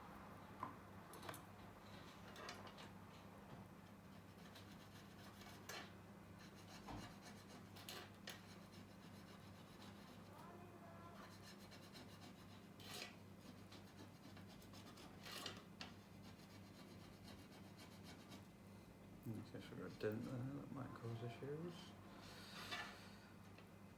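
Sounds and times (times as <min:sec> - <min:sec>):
low electrical hum: 0:00.0 - 0:23.9
hand tool scraping metal: 0:12.8 - 0:13.2, 0:15.1 - 0:15.6.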